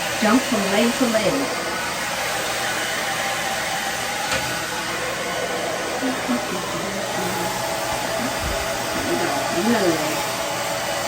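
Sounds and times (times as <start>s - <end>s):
hairdryer blowing air: 0.0s - 11.0s.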